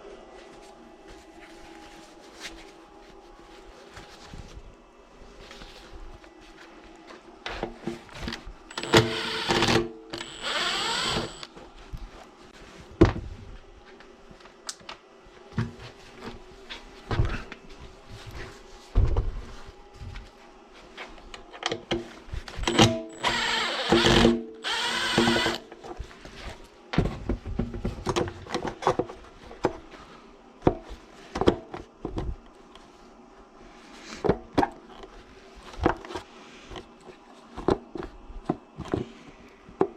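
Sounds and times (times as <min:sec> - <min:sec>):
power tool bursts: 0:08.7 - 0:11.5, 0:22.7 - 0:25.6.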